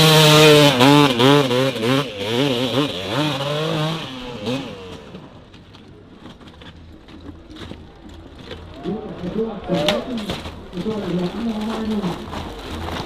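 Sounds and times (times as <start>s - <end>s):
dirt bike engine revving: 0.0s - 5.5s.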